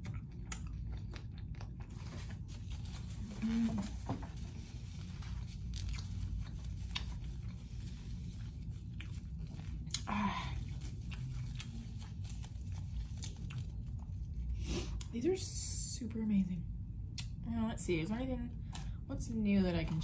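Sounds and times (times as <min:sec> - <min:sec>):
chewing chicken wings: 0:00.0 - 0:03.8, 0:05.6 - 0:14.4
low background hum: 0:00.0 - 0:20.0.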